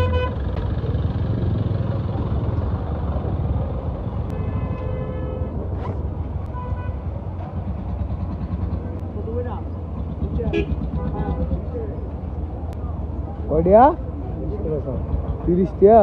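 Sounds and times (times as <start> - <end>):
vehicle horn honking: 0.0 - 0.4, 4.3 - 5.6, 6.5 - 7.1
road traffic rumble: 0.0 - 16.0.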